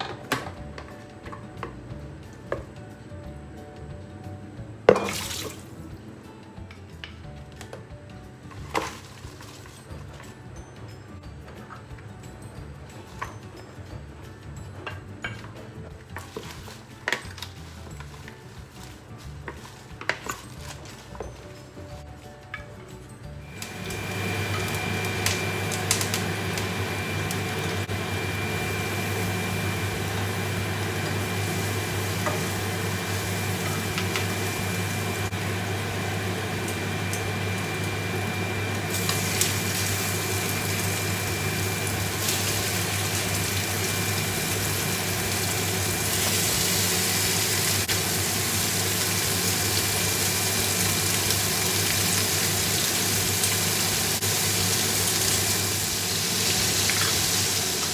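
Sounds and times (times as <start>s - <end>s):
oil sizzling in a frying pan: 23.4s - 57.9s.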